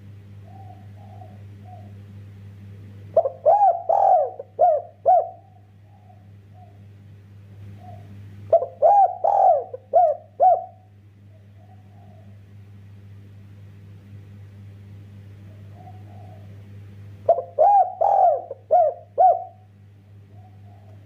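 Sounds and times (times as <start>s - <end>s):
steady low hum: 0.0s - 21.0s
dove cooing: 0.4s - 2.0s, 3.1s - 6.9s, 7.6s - 12.6s, 15.4s - 21.0s.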